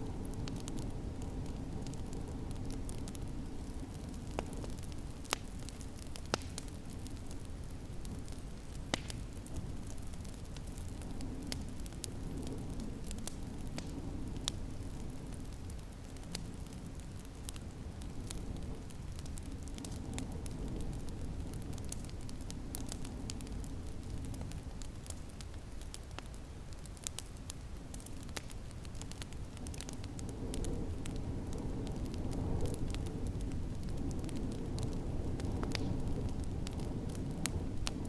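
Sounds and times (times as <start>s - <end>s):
wood fire crackling: 0.0s - 38.0s
storm wind rumbling: 29.6s - 38.0s.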